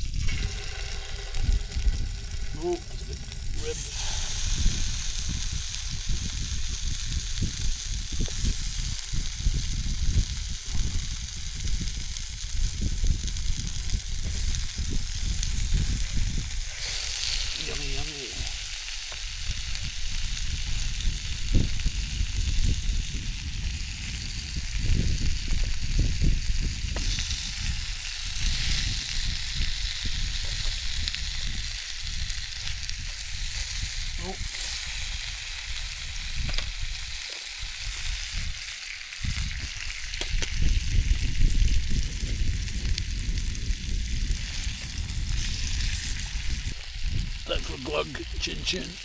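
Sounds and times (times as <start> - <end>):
wind buffeting microphone: 0.0 - 38.6, 39.2 - 49.0
meat sizzling in a frying pan: 0.0 - 49.0.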